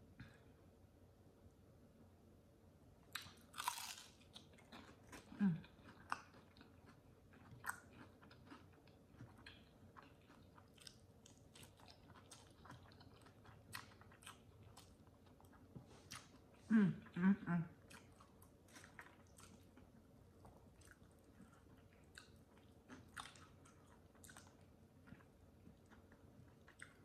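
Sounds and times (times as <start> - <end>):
close chewing with clicks: 3.1 - 16.5, 17.8 - 27.0
crunchy bite into fried chicken: 3.2 - 5.4.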